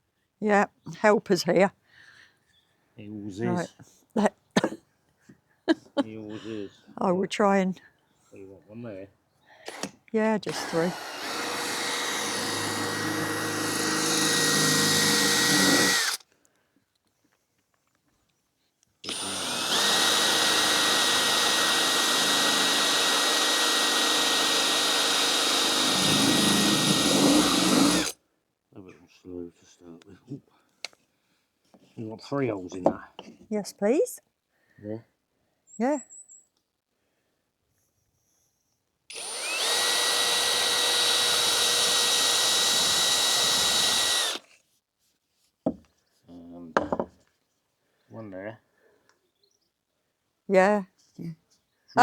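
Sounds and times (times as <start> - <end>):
power drill whining: 9.7 - 16.2, 19.0 - 28.2, 39.1 - 44.5.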